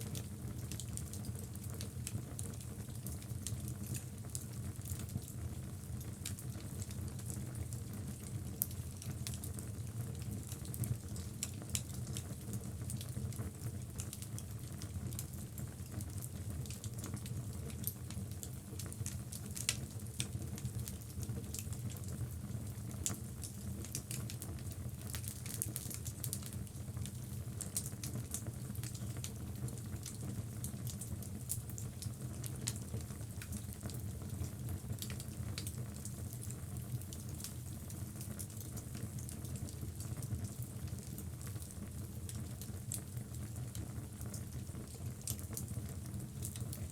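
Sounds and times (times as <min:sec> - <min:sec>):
fire crackling and popping: 0:13.3 - 0:46.7.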